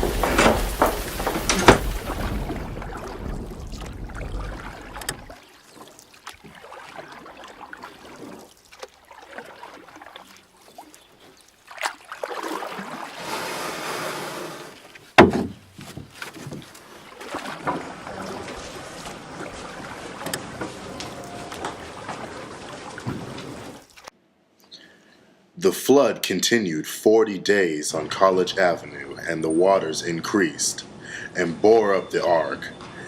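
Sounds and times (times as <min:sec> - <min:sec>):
knocks: 0:00.0 - 0:02.6, 0:15.2 - 0:16.6
rumbling thunder: 0:00.0 - 0:05.3
rain: 0:00.0 - 0:05.4, 0:17.3 - 0:24.1
water sounds: 0:00.0 - 0:24.1.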